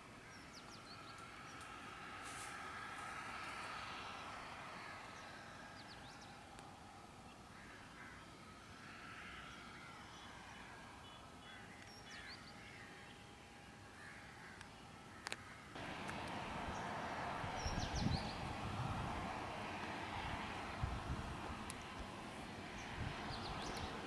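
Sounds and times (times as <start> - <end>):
harsh distant bird calls: 15.2 - 24.0
faint steady hum: 15.8 - 24.0.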